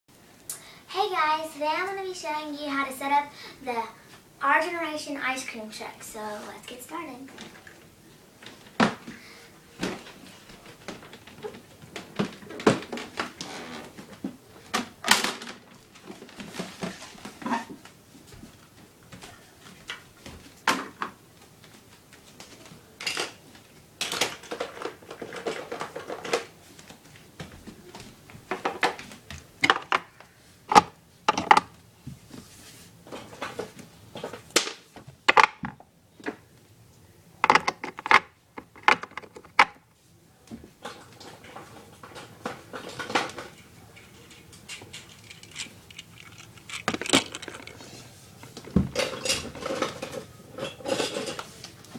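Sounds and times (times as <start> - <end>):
plastic pieces clicking and clattering: 24.0 - 26.5, 30.7 - 31.7, 37.4 - 39.8, 42.7 - 47.9
rustling handling: 42.1 - 50.0.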